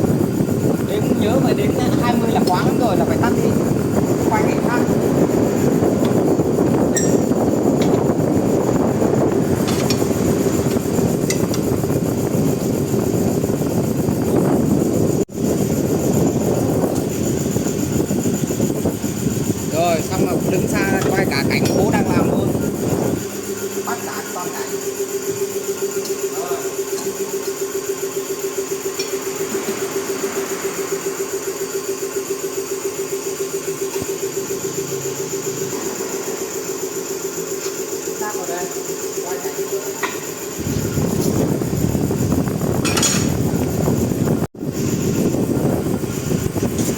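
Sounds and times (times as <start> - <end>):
mechanical drone: 0.0 - 46.9
small engine running: 0.0 - 46.9.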